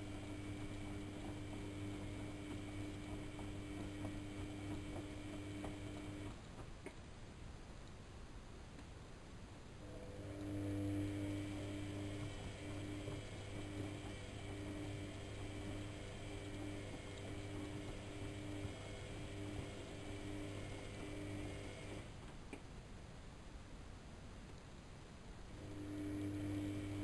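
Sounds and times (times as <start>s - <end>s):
washing machine motor hum: 0.0s - 7.0s, 9.8s - 22.5s, 25.6s - 27.0s.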